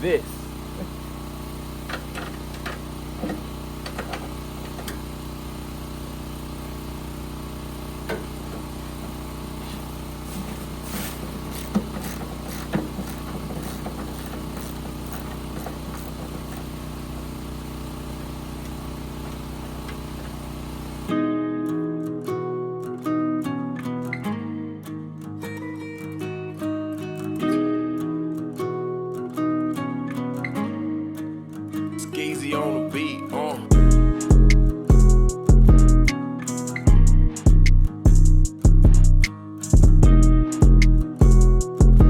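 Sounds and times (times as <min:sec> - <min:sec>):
small engine idling: 0:00.2 - 0:21.1, 0:33.7 - 0:36.0.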